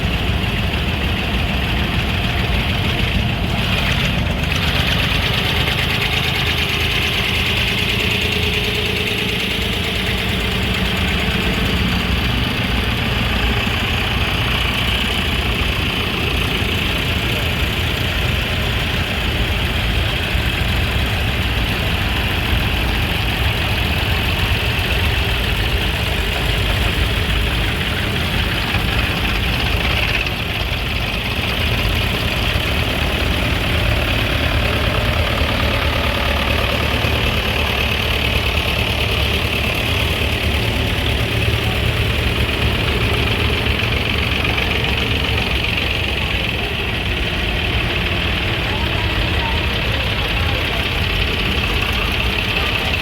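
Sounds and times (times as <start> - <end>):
engine idling: 0.0 - 53.0.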